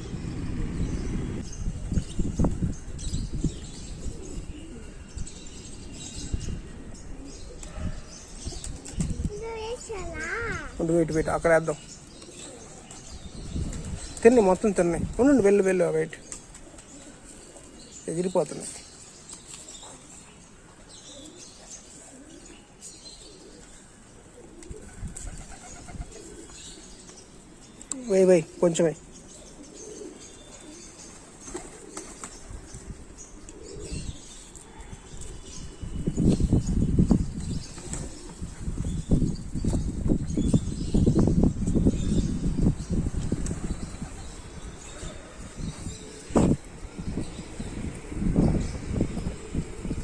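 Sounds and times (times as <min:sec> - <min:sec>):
pigeons cooing: 0:03.0 - 0:10.8, 0:12.0 - 0:14.8, 0:15.5 - 0:50.0
wings flapping: 0:08.4 - 0:09.4, 0:31.2 - 0:32.7.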